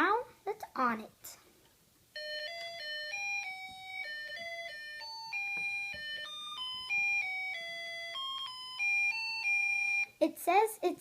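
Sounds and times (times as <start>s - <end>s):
beeping electronic melody: 2.2s - 10.2s.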